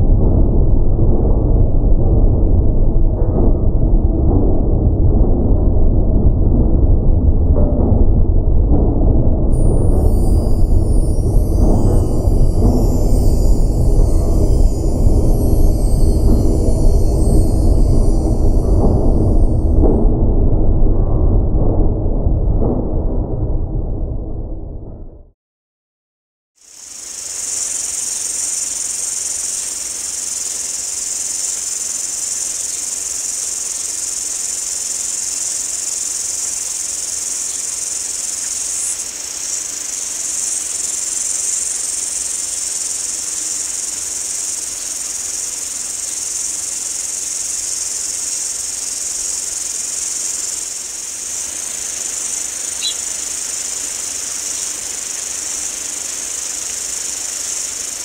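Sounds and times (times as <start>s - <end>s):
insects shrilling: 26.6s - 58.0s
short high chirp: 50.2s - 54.8s.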